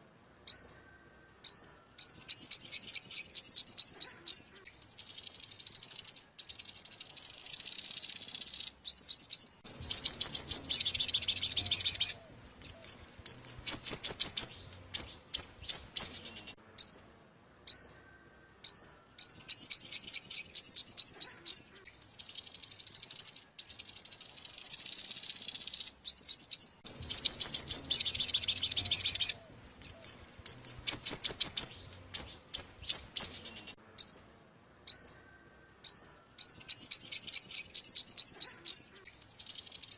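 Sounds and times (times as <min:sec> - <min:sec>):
sunbird song: 0:00.0 - 0:39.9.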